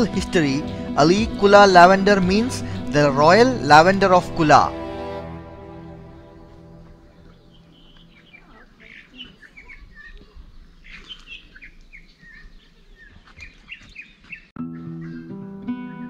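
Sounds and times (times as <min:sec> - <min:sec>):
small birds chirping: 0:06.1 - 0:15.4.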